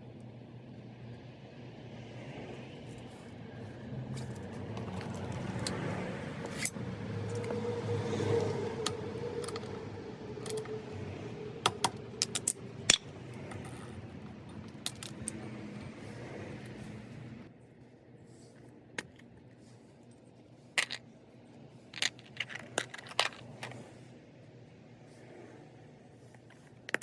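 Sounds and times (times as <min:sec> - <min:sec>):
metal tools clinking: 0:06.4 - 0:07.6, 0:10.4 - 0:10.8, 0:11.7 - 0:15.9.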